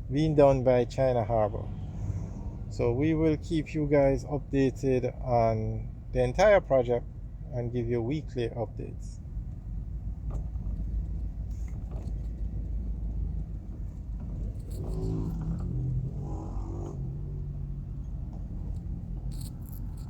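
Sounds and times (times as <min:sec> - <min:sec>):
car road rumble inside cabin: 0:09.2 - 0:20.0.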